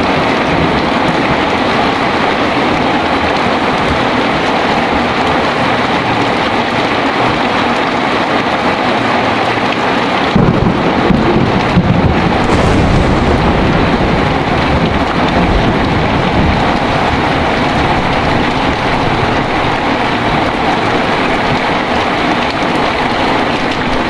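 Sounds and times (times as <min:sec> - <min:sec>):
heavy rain: 0:00.0 - 0:24.0
thunder cracks and rumble: 0:10.3 - 0:24.0.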